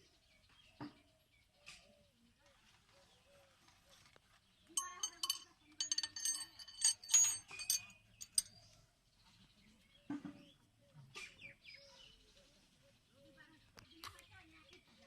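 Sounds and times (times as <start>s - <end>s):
metal tools clinking: 4.8s - 8.6s.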